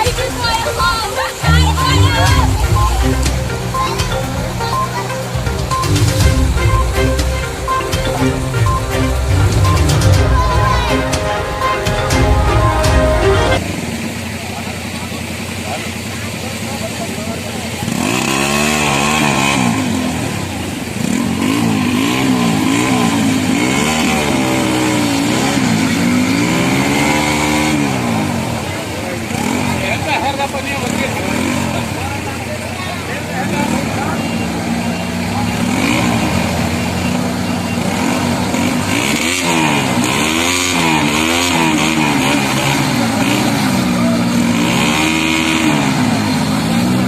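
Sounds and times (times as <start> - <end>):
engine revving: 17.8 - 28.7, 33.4 - 47.0.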